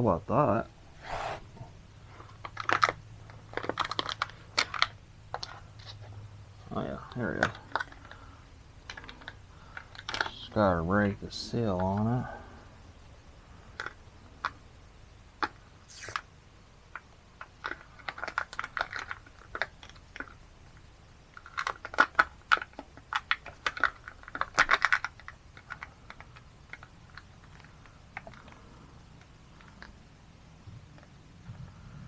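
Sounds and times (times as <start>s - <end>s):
plastic bottle clicking and crinkling: 2.2s - 6.1s, 7.1s - 10.4s, 13.8s - 14.6s, 16.9s - 30.0s.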